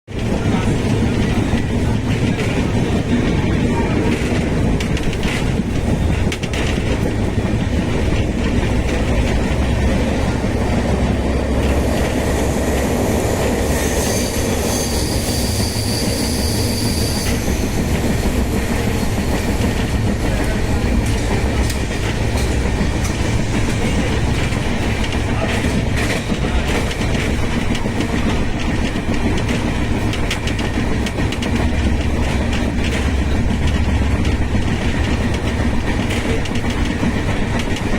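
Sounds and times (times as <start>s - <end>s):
train rumbling on track: 0.0s - 37.9s
wheels clattering over rail joints: 0.1s - 14.4s, 17.3s - 37.9s
high wheel squeal: 11.4s - 19.5s.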